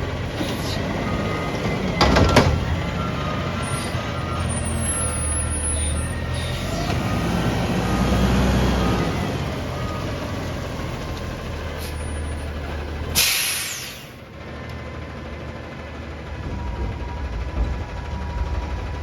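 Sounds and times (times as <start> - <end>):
diesel engine running: 0.0 - 19.0
loud air brake hiss: 11.8 - 12.3, 13.1 - 14.2.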